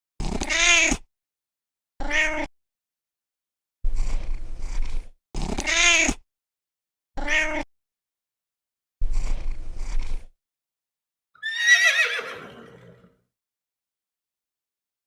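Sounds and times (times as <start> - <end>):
cat meowing: 0.5 - 1.0, 2.0 - 2.5, 5.6 - 6.2, 7.2 - 7.7.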